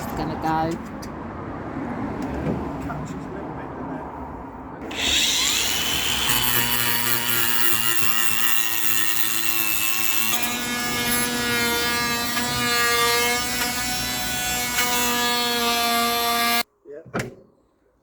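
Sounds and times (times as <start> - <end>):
power tool cutting wood: 4.8 - 16.7.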